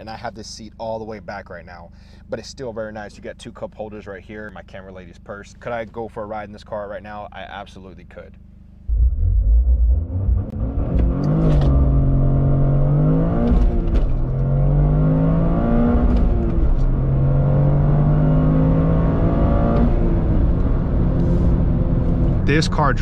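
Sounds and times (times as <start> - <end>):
car engine accelerating: 8.9 - 23.0.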